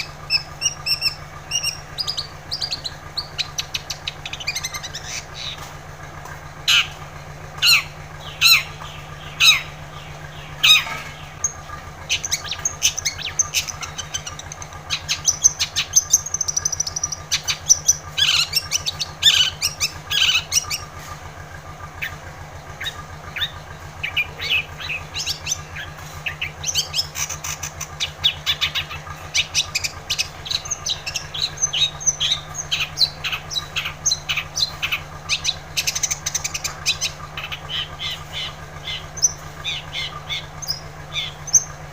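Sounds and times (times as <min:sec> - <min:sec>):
shrike singing: 0:00.0 - 0:05.7, 0:06.6 - 0:21.0, 0:22.0 - 0:41.9
loud harsh bird calls: 0:00.0 - 0:41.9
steady low hum: 0:00.0 - 0:41.9.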